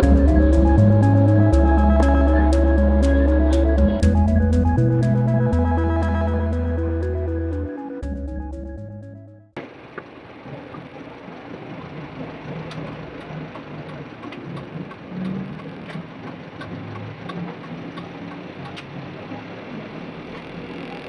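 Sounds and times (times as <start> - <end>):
intro music: 0.0 - 9.6.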